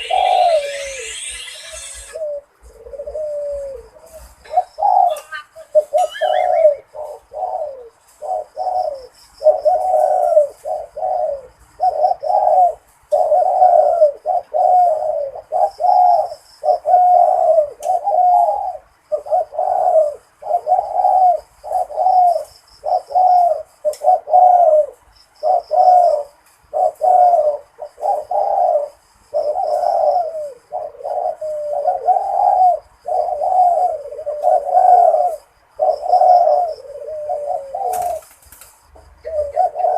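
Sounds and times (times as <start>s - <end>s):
faint high chirping: 0.0s - 10.4s
dove cooing: 0.0s - 39.9s.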